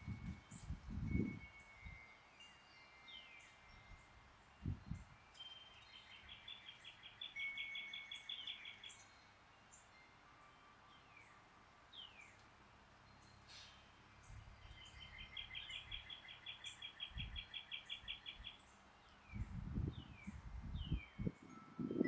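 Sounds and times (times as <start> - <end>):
wind rumble on microphone: 0.0 - 2.0, 4.6 - 5.2, 17.1 - 17.5, 19.3 - 22.0
faint songbirds singing: 0.0 - 22.0.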